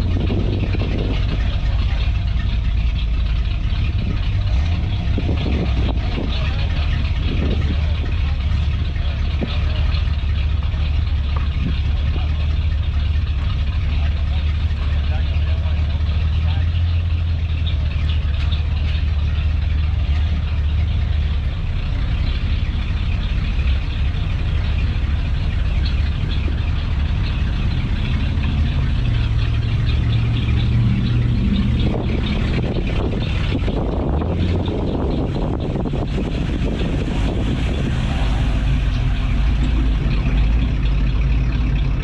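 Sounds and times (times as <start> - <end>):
car engine idling: 0.0 - 42.0
busy mixed noise: 17.5 - 42.0.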